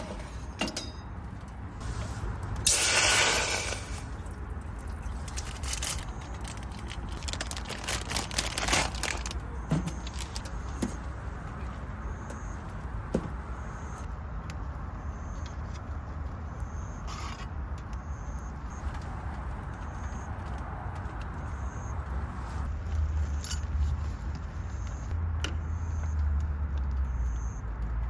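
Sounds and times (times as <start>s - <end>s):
loud hiss: 1.8s - 4.1s.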